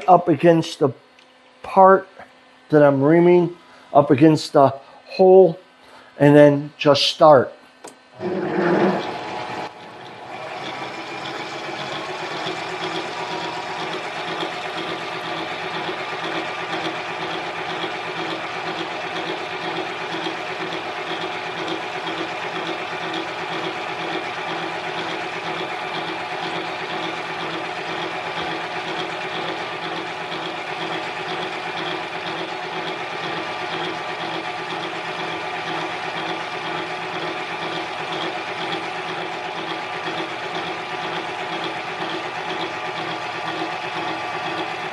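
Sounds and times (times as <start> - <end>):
lathe motor whining: 8.2 - 44.7.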